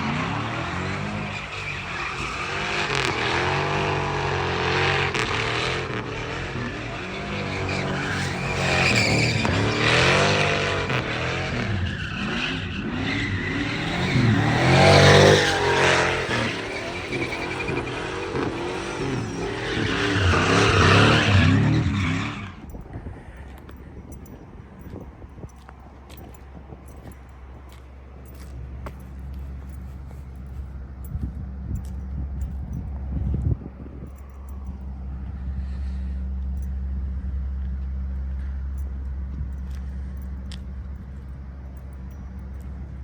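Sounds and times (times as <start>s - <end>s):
tyre squeal: 0.0s - 22.7s
car engines revving: 0.0s - 43.0s.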